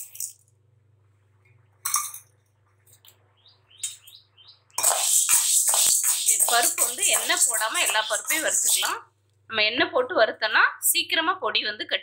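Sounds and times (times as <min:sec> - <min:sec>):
high bird chirps: 0:03.4 - 0:08.8.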